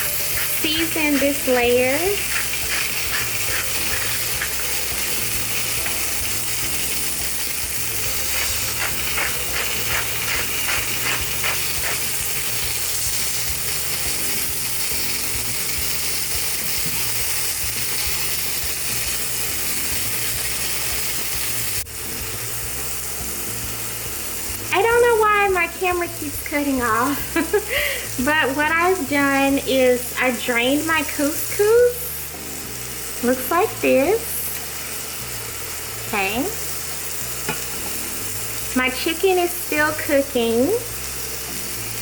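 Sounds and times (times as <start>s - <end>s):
seasoning grinder clicks: 0.0s - 21.8s, 34.5s - 39.2s
food sizzling in a frying pan: 0.0s - 42.0s.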